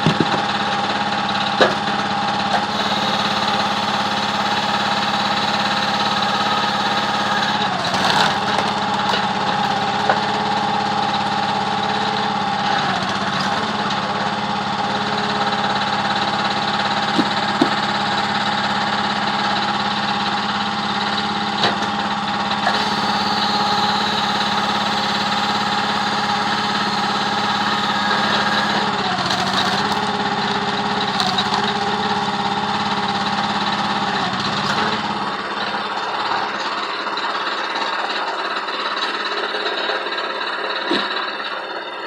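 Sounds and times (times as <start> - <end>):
engine running steadily: 0.0 - 42.0.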